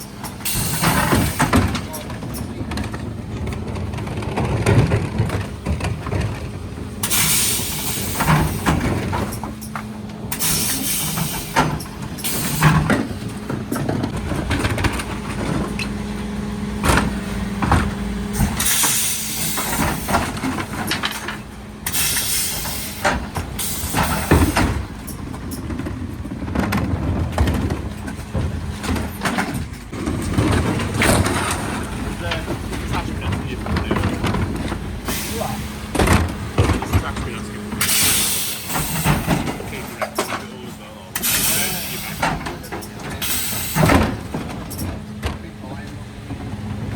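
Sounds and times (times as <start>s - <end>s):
bin lifters knocking and clattering: 0.0s - 46.9s
truck hydraulics humming: 0.0s - 46.9s
loud air hisses: 7.0s - 8.7s, 18.6s - 20.2s, 21.8s - 24.6s, 35.0s - 35.9s, 37.8s - 39.3s, 41.2s - 42.3s, 43.2s - 44.0s.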